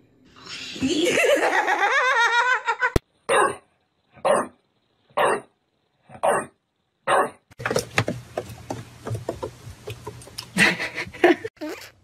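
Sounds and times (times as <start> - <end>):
person laughing: 0.8 - 3.0, 10.5 - 11.5
dog barking: 3.3 - 3.6, 4.2 - 4.6, 5.2 - 5.5, 7.1 - 7.4.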